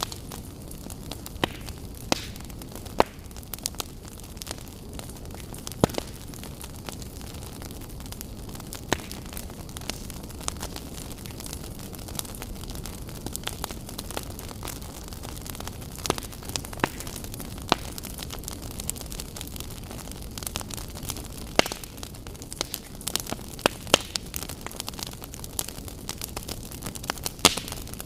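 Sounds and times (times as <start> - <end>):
fire flames rushing: 0.0 - 28.0
wood fire crackling and popping: 0.0 - 28.0.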